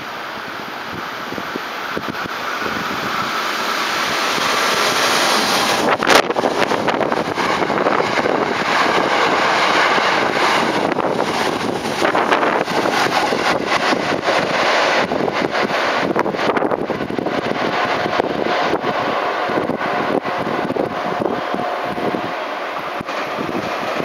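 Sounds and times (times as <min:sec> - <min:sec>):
electric train rushing past: 0:00.0 - 0:24.0
wheels clattering on rails: 0:00.0 - 0:24.0.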